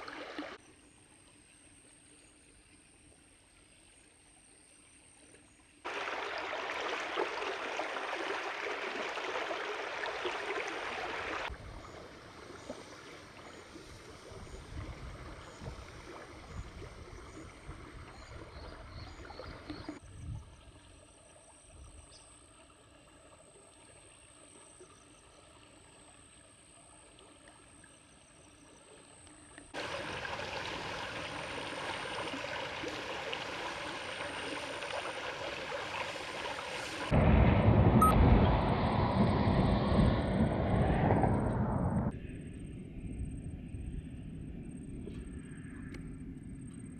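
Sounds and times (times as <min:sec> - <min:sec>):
stream water rushing: 0:00.0 - 0:00.6, 0:05.8 - 0:16.6, 0:29.8 - 0:37.2
wind gusting on microphone: 0:14.1 - 0:18.5, 0:37.0 - 0:46.5.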